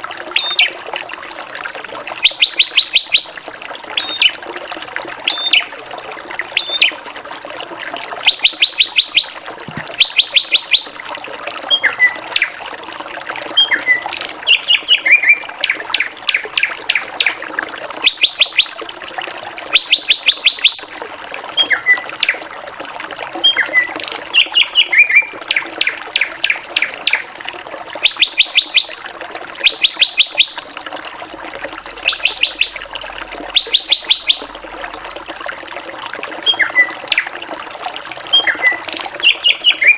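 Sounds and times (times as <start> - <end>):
bird singing sharp high notes: 32.0 - 32.8, 38.3 - 39.9.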